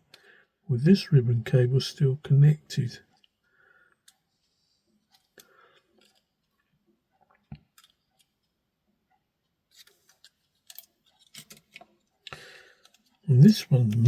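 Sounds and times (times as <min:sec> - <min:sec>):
faint clicks and taps of plastic parts: 0:03.0 - 0:13.3.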